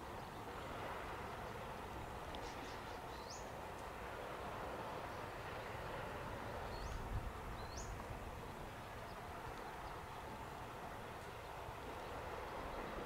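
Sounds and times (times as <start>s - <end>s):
soft outdoor hiss: 0.0s - 13.0s.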